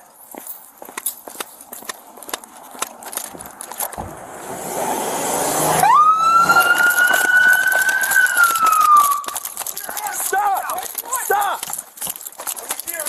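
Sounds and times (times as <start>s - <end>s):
rising rush of noise: 4.0s - 8.9s
police siren wailing: 5.0s - 9.3s.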